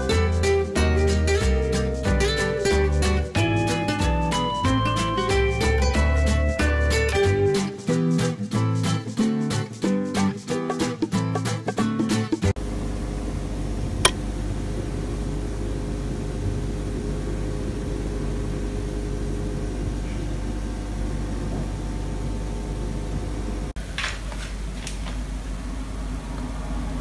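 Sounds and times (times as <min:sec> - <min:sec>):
machine humming: 0:12.6 - 0:23.8.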